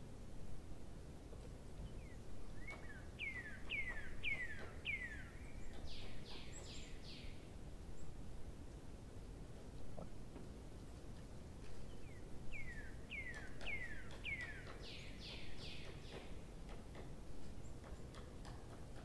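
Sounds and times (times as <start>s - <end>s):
faint steady background hiss: 0.0s - 19.0s
bird singing falling notes: 12.5s - 16.4s.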